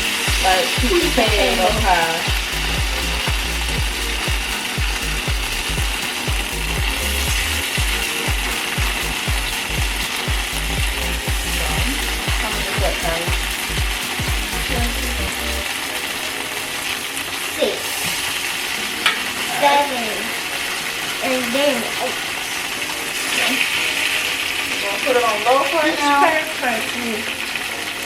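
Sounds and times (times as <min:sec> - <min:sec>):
patties sizzling in a frying pan: 0:00.0 - 0:28.0.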